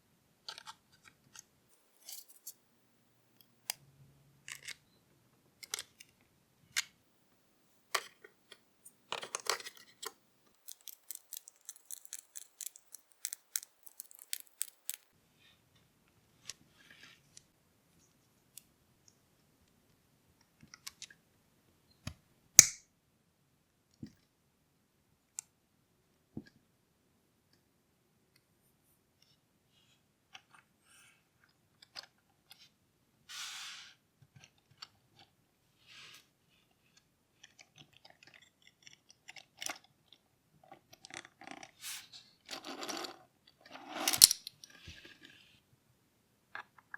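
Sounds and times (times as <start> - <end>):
plastic parts clicking: 8.0 - 15.1.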